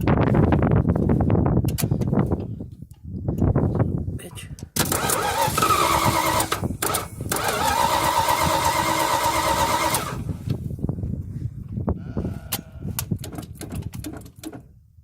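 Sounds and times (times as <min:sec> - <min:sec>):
engine starter cranking: 0:04.8 - 0:10.4
engine running unevenly: 0:04.9 - 0:10.3.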